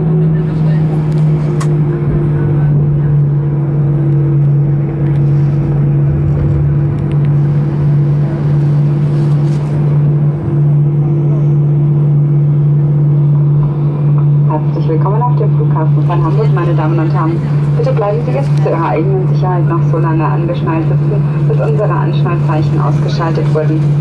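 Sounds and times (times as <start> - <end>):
aircraft engine hum: 0.0 - 24.0
low rumble: 0.0 - 24.0.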